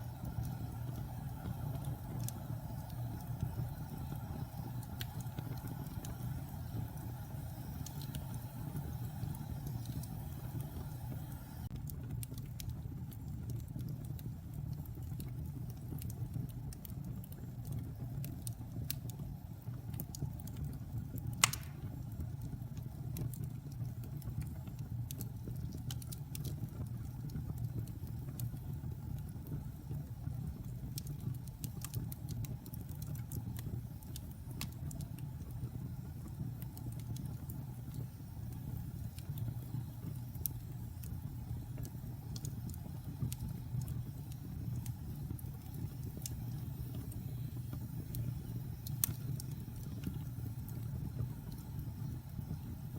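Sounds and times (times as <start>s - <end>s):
fire crackling: 0.0s - 52.9s
fire low rumble: 0.0s - 52.9s
fire sharp pop: 21.4s - 22.0s.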